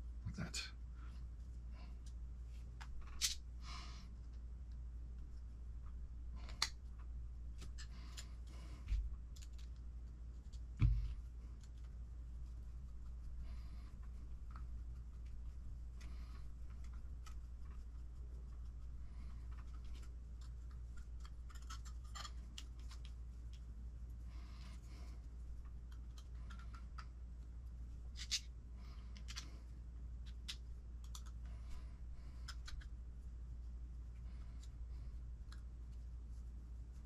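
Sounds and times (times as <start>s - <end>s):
steady low hum: 0.0s - 37.0s
small plastic parts clicking: 2.8s - 3.4s, 9.3s - 9.8s, 19.4s - 23.6s, 25.6s - 27.2s, 29.1s - 29.5s, 30.2s - 31.5s, 32.4s - 32.9s.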